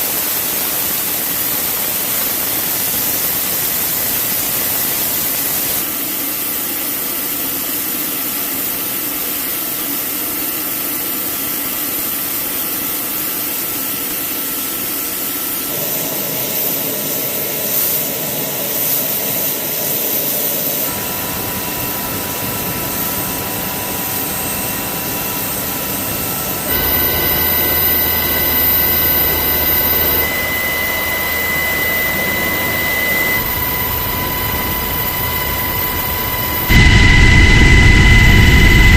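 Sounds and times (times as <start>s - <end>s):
helicopter turbine whine: 13.9s - 38.9s
low hum: 20.9s - 38.9s.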